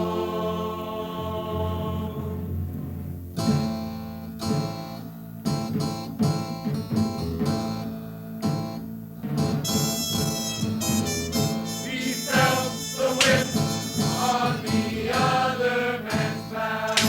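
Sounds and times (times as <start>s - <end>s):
acoustic guitar strumming chords: 9.4s - 17.0s.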